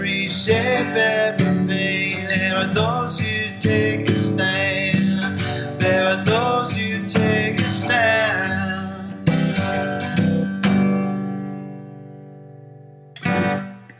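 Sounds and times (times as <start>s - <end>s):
person singing: 0.0s - 10.3s
acoustic guitar strumming: 0.0s - 13.9s.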